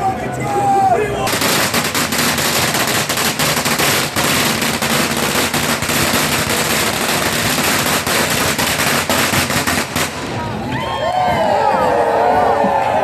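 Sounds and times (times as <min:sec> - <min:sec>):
firecrackers crackling: 0:01.1 - 0:10.7.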